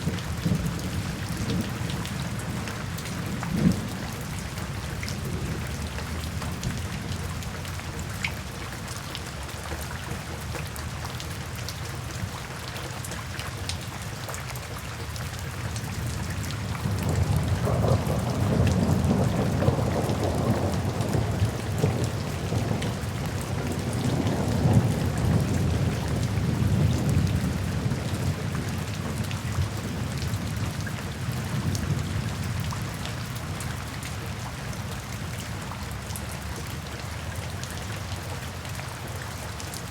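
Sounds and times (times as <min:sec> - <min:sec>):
low rumble of thunder: 0:00.0 - 0:08.1, 0:15.8 - 0:36.5
sharp raindrops: 0:00.0 - 0:39.9
steady rain falling: 0:00.0 - 0:39.9.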